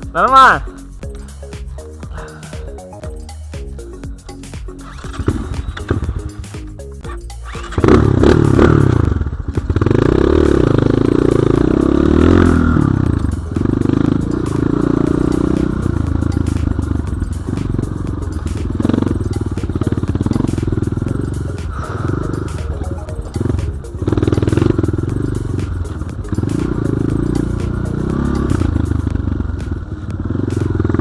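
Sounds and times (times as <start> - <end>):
motorcycle engine revving: 4.7 - 31.0.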